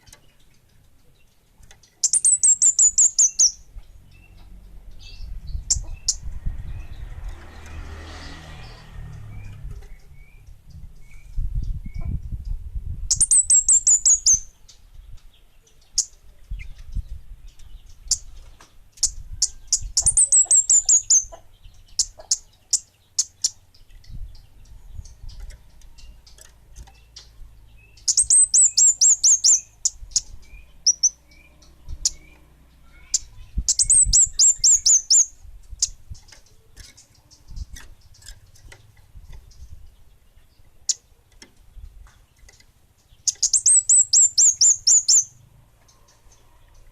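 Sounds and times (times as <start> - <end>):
songbird trilling: 0.0 - 7.0, 13.1 - 41.1, 42.4 - 46.9
bird sharp chips: 42.4 - 45.3.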